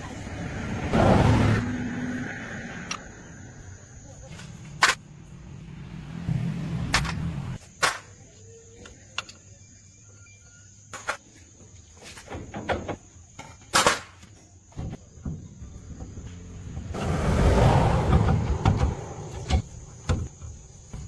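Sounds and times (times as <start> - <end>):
low rumble: 15.6 - 20.0.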